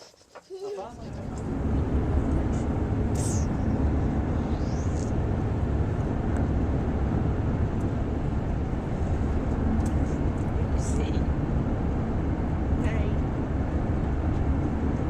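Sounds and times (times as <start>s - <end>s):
steady low rumbling: 0.9s - 15.0s.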